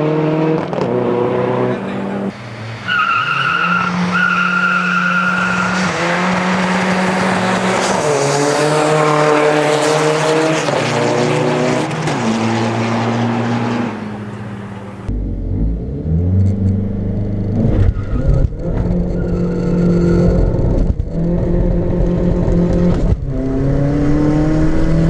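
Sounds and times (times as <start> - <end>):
car engine revving: 0.0 - 25.0
tyres squealing and skidding: 0.8 - 15.1, 17.7 - 20.3.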